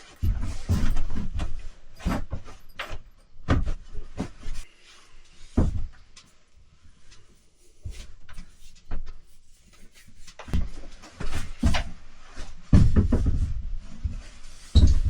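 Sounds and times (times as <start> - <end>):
knocks and thumps: 0.2 - 4.6, 5.5 - 6.0, 10.4 - 12.0, 12.6 - 15.0.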